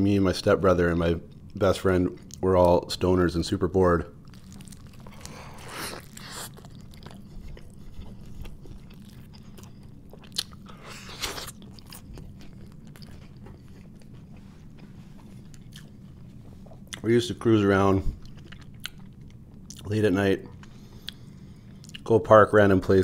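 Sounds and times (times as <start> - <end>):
crunchy bites: 4.2 - 14.1
man biting and chewing: 4.2 - 17.0, 18.2 - 19.9.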